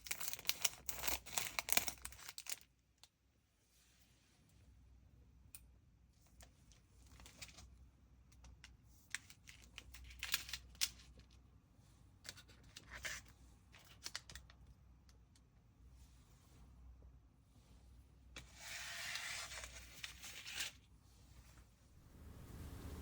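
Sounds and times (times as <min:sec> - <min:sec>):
plastic wrappers crinkling: 0:00.0 - 0:02.7.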